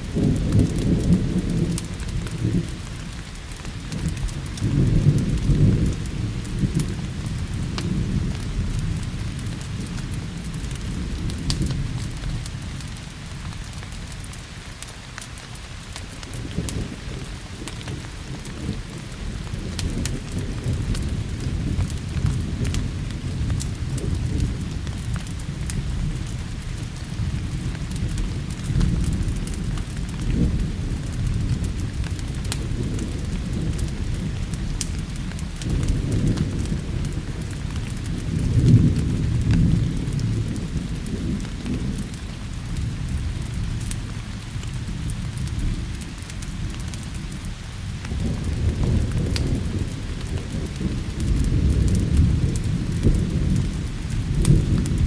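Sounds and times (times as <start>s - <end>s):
thunder rumbling: 0.0s - 14.6s, 15.4s - 55.0s
sharp crackles: 0.0s - 55.0s
steady rain: 0.0s - 55.0s.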